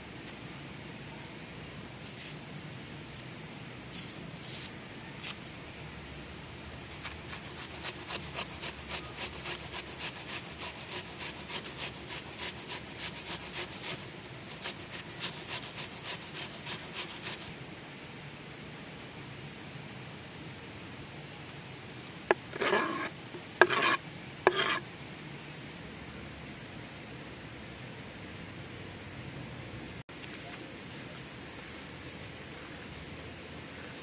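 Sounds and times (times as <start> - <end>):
faint steady hiss: 0.0 - 34.0
scraping strokes on wood: 7.0 - 17.5, 22.3 - 24.8.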